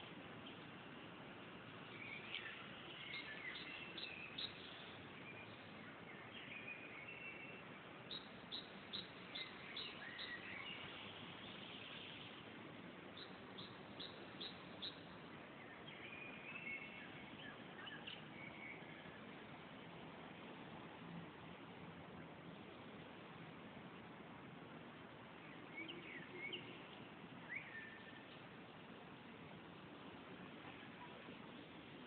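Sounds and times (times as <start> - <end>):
faint steady hiss: 0.0 - 32.0
soft bird twittering: 1.9 - 12.4, 13.1 - 19.3, 25.4 - 28.3.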